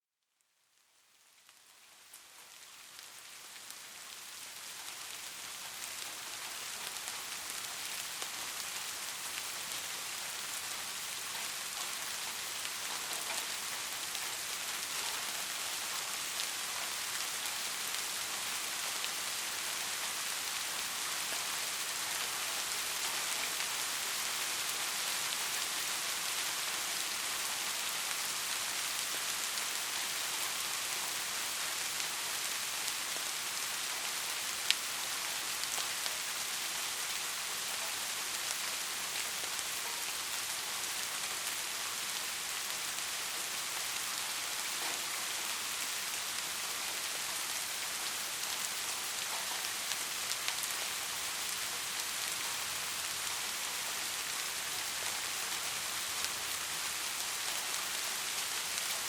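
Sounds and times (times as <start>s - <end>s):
steady rain hiss: 0.2s - 59.0s
raindrop ticks: 11.2s - 18.2s.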